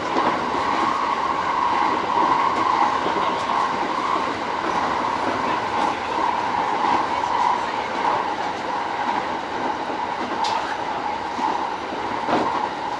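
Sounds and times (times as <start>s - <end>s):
train wheels rolling on rail: 0.0s - 12.9s.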